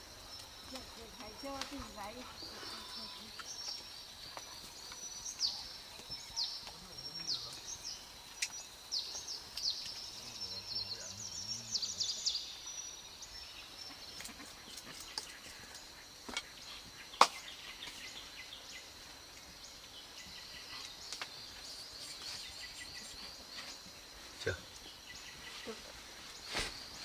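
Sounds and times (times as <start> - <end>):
high insect drone: 0.0 - 27.0
small birds chirping: 0.0 - 27.0
sharp snaps: 8.3 - 10.1.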